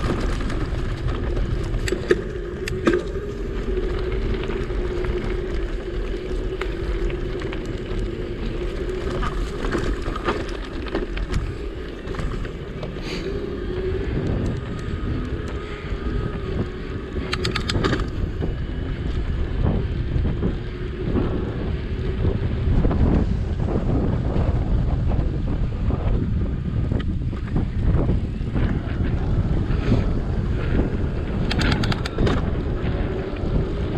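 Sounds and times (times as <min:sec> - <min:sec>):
electric bike hum: 0:00.0 - 0:33.9
wind buffeting microphone: 0:00.0 - 0:33.9.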